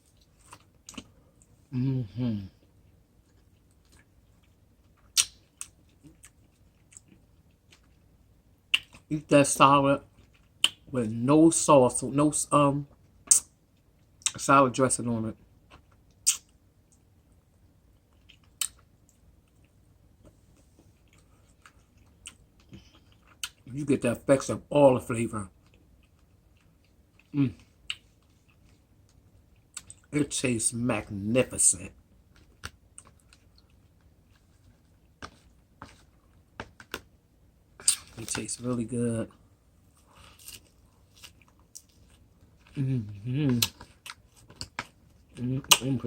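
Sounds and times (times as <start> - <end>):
person chewing salad: 0.0 - 9.1, 10.1 - 10.9, 15.4 - 23.7, 25.5 - 30.1, 32.2 - 37.1, 37.8 - 38.4, 39.3 - 46.0
small mouth clicks: 16.2 - 16.5.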